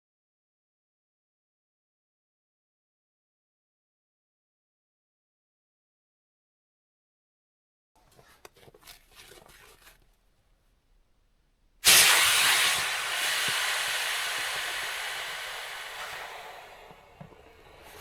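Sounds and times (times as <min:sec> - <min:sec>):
loud hiss: 0:11.8 - 0:18.0.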